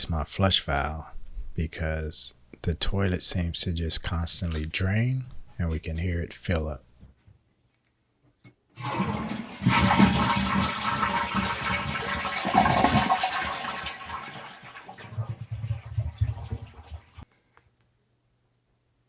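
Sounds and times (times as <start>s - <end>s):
toilet water rushing: 8.8s - 17.2s
water gurgling in bowl: 8.8s - 17.2s.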